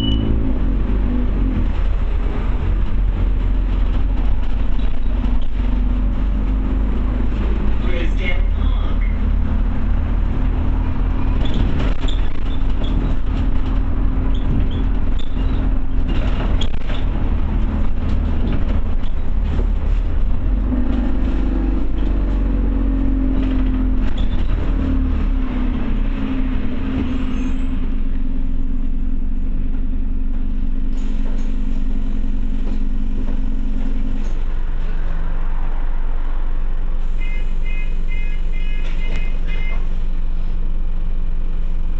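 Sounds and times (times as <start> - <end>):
bus diesel engine rumble: 0.0 - 41.9
interior rattles and knocks: 1.4 - 7.8, 9.2 - 35.9.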